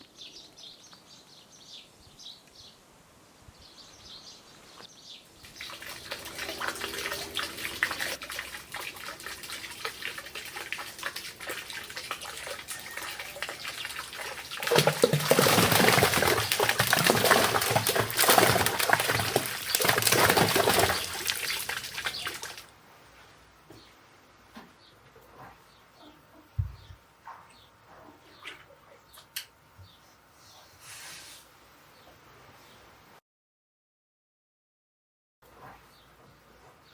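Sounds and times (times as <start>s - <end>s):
running water splashing: 5.3s - 22.7s.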